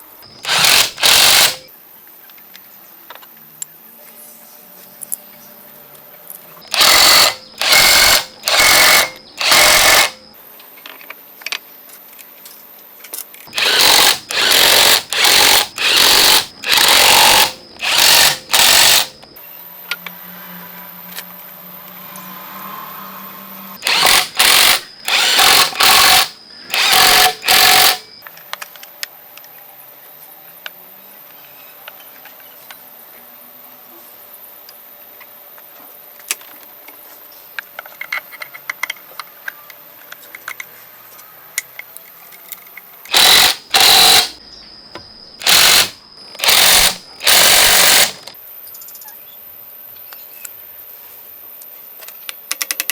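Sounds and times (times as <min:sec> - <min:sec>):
power tool bursts: 0:00.3 - 0:01.7, 0:06.7 - 0:10.2, 0:13.5 - 0:19.3, 0:23.8 - 0:28.1, 0:43.1 - 0:44.4, 0:45.4 - 0:48.4.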